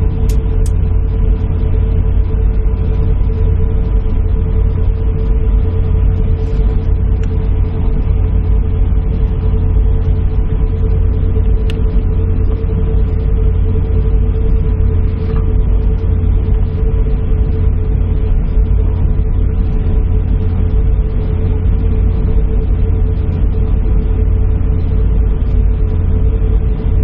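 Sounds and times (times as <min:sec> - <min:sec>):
airliner cabin rumble: 0:00.0 - 0:27.0
mid-pitched hum: 0:00.0 - 0:27.0.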